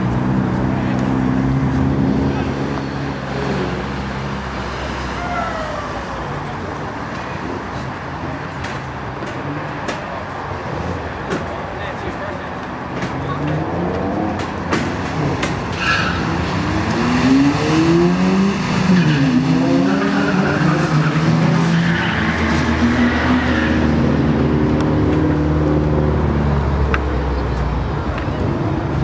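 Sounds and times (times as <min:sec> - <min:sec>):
car engine accelerating hard: 0:16.2 - 0:27.4.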